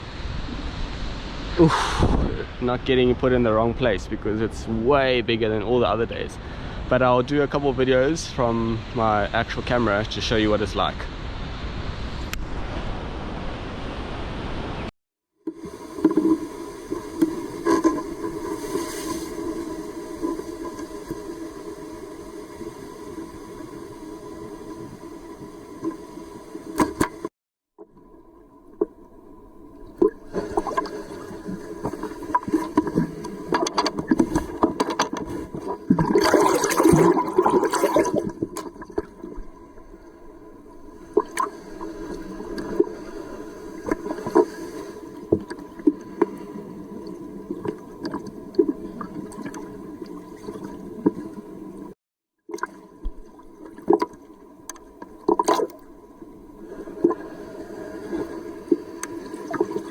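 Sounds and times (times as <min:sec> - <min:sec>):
seawater gurgling and rushing: 0:15.5 - 0:59.9.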